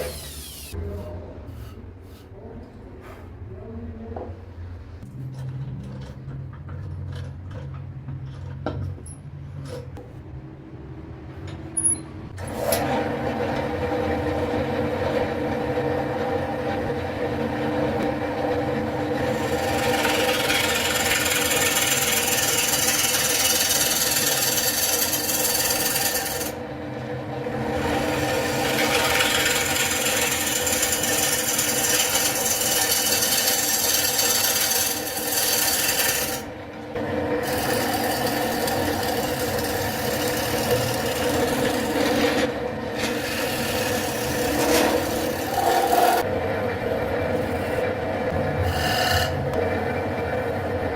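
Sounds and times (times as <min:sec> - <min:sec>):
wood lathe motor humming: 0:13.3 - 0:26.6, 0:27.5 - 0:36.5, 0:37.3 - 0:46.3, 0:48.6 - 0:49.7
tool scraping spinning wood: 0:17.5 - 0:26.6, 0:27.5 - 0:36.5, 0:37.3 - 0:46.3, 0:47.3 - 0:49.6.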